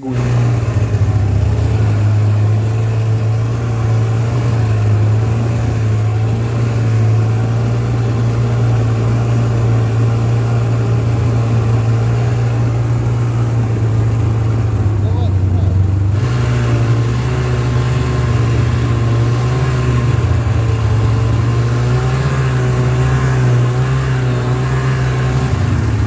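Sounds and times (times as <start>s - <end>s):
snowmobile engine running: 0.0s - 26.0s.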